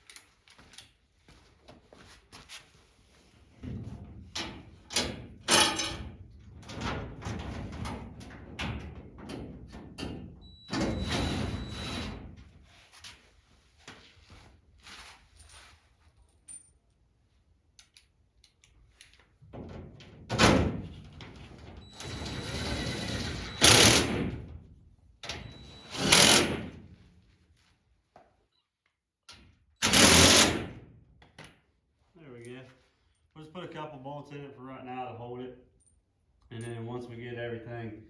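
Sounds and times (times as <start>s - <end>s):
power drill whining: 10.7s - 12.2s, 21.9s - 24.2s, 25.4s - 26.6s, 29.8s - 30.6s.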